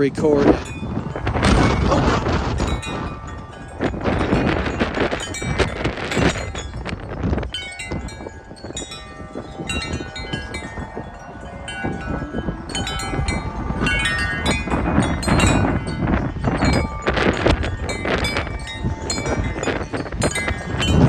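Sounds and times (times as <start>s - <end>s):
wind buffeting microphone: 0.0s - 21.0s
wind chimes ringing: 0.0s - 21.0s.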